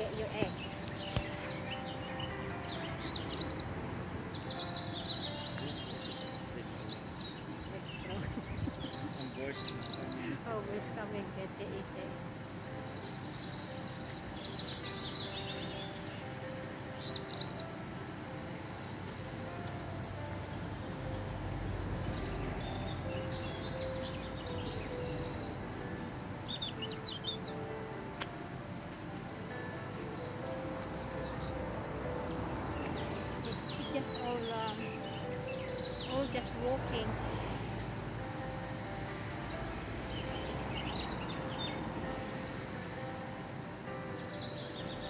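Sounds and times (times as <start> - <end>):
songbird chirping: 0.0 - 45.0
steady outdoor noise: 0.0 - 45.0
steady outdoor rumble: 7.5 - 13.3, 19.1 - 25.9.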